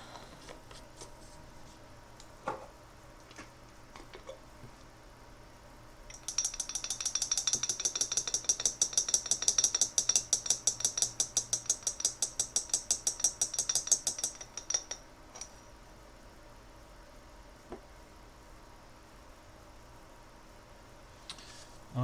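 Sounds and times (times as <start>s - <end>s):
rapid clicking of paint jar mixing: 6.1s - 15.6s.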